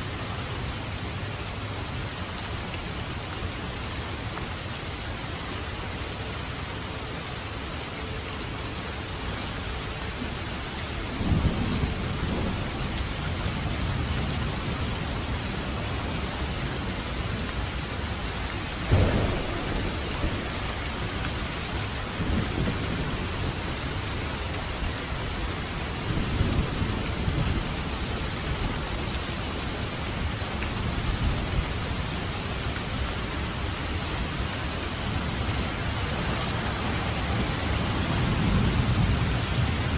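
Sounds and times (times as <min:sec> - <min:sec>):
heavy rain on a roof: 0:00.0 - 0:39.9
thunder rumbling: 0:11.1 - 0:33.6, 0:34.9 - 0:39.9
sharp thunderclap: 0:18.8 - 0:23.5.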